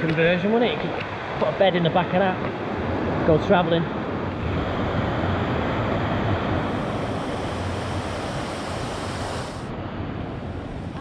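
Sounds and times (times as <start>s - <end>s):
steady rushing noise: 0.2s - 11.0s
high hiss: 6.4s - 9.7s.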